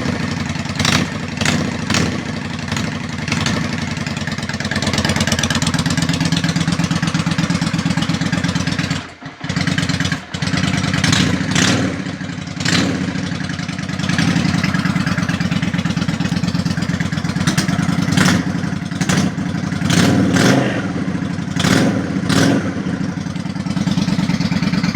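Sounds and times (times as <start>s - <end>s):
motorcycle engine idling: 0.0s - 24.9s
motorcycle throttle blips: 8.7s - 24.9s.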